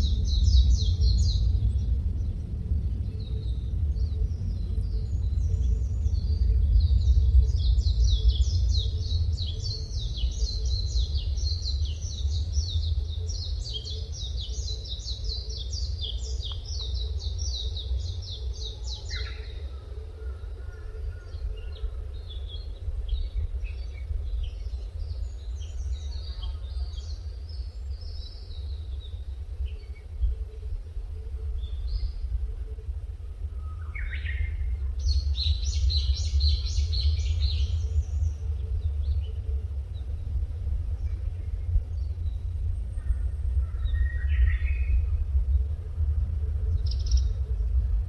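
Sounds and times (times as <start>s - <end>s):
songbirds chirping: 0.0s - 48.0s
steady low rumble: 0.0s - 48.0s.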